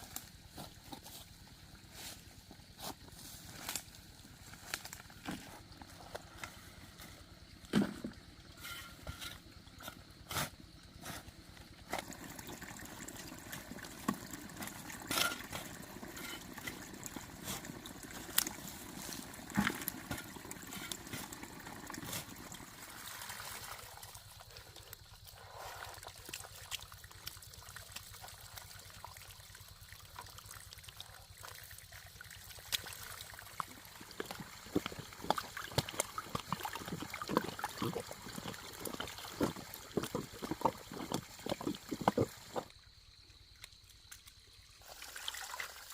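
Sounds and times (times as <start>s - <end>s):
small knocks and splashes: 7.6s - 10.1s, 11.7s - 24.5s, 25.9s - 45.9s
water trickling: 11.5s - 45.9s.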